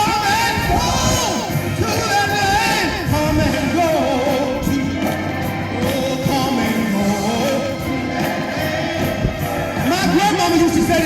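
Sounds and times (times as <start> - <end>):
wind rumbling on microphone: 0.0 - 4.8
hymn singing: 0.0 - 11.0
instrumental accompaniment: 0.0 - 11.0.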